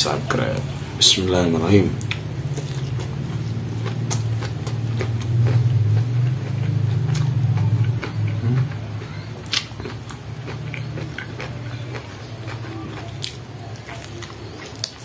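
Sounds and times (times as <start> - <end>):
chewing raw vegetables: 1.6 - 15.0
low hum: 1.9 - 13.7.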